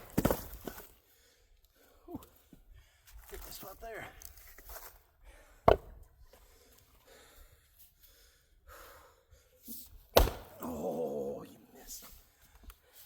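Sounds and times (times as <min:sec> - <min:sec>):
axe striking a log: 0:05.6 - 0:05.9, 0:10.1 - 0:10.7
heavy breathing: 0:06.3 - 0:09.7.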